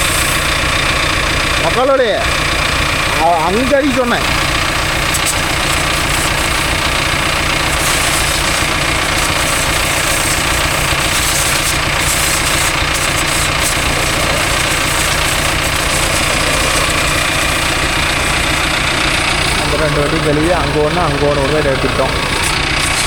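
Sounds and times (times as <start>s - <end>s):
water jet spraying: 0.0s - 1.1s, 3.0s - 23.0s
engine idling: 0.0s - 23.0s.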